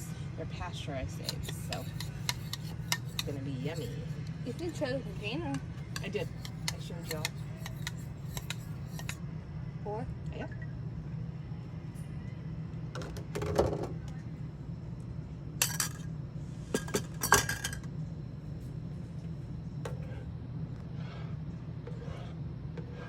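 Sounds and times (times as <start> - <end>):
steady low hum: 0.0 - 23.0
utensils clinking against cookware: 1.2 - 4.8, 5.9 - 9.2, 15.6 - 16.0, 16.8 - 17.8.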